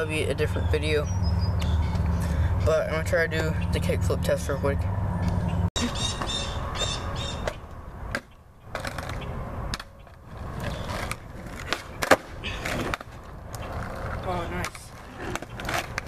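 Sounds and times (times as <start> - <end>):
skateboard wheels rolling on pavement: 5.3 - 16.0
skateboard deck clacking: 7.4 - 16.0.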